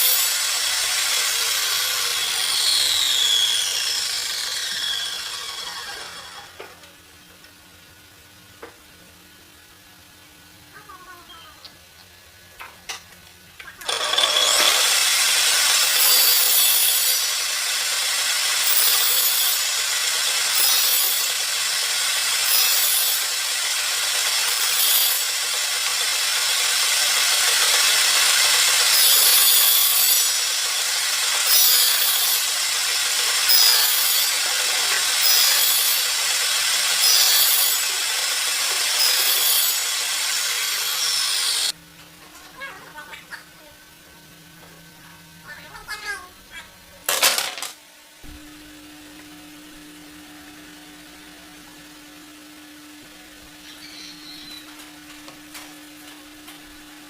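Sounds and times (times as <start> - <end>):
wood being sawn: 0.0 - 6.6, 13.8 - 41.7.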